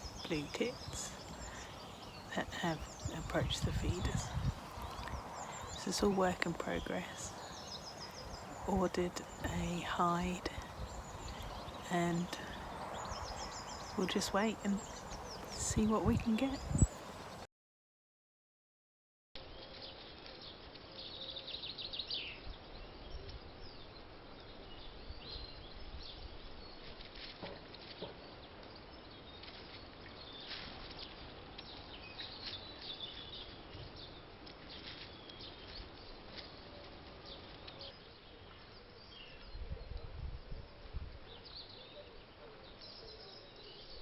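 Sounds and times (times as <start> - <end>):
outdoor background hiss: 0.0 - 17.5
small birds chirping: 0.0 - 17.5.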